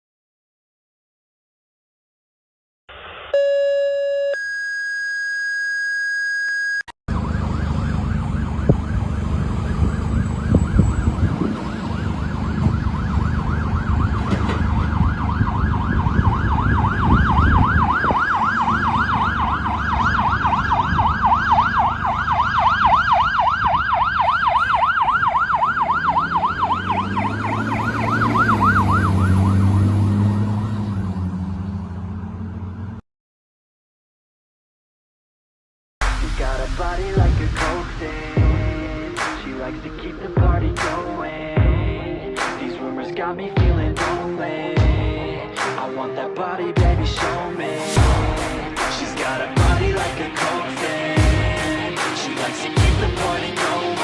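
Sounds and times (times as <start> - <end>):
fire engine siren yelping: 2.9 - 33.0
truck engine rumble: 7.1 - 33.0, 36.0 - 45.5, 46.8 - 54.0.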